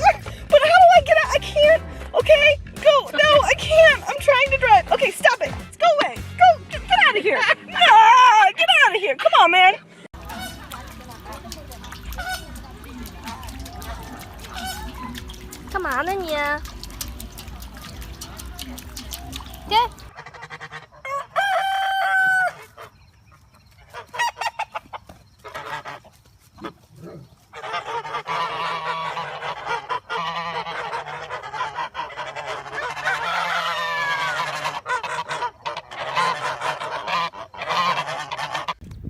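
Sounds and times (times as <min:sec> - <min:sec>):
geese honking: 0:10.2 - 0:15.9, 0:16.6 - 0:26.8, 0:27.4 - 0:38.8.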